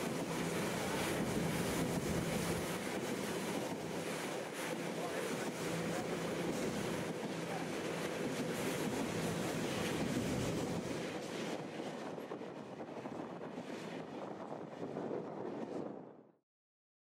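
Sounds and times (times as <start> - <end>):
wind buffeting microphone: 0.0 - 16.2.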